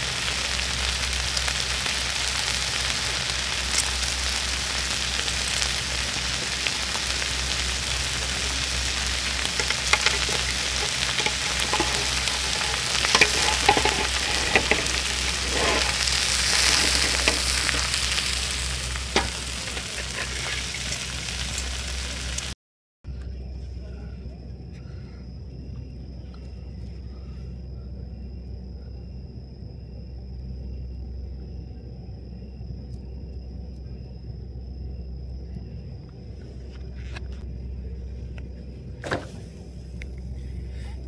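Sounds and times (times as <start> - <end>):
fire pops and crackles: 0.0 - 22.6
fish sizzling over campfire: 0.0 - 22.6.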